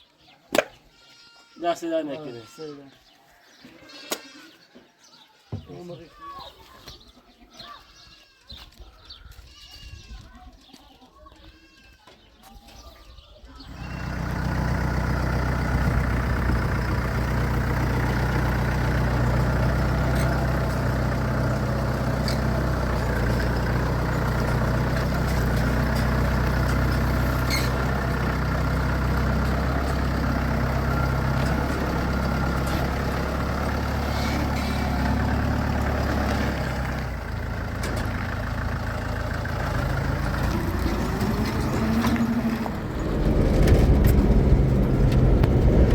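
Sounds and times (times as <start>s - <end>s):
vehicle engine running: 13.6s - 45.9s.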